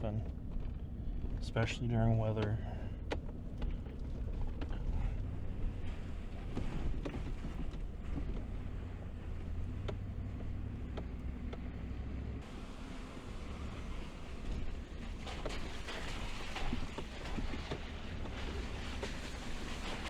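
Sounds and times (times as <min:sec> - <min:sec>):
knocks and rattles: 0:00.0 - 0:11.9
truck engine and tyres rumbling: 0:00.0 - 0:20.0.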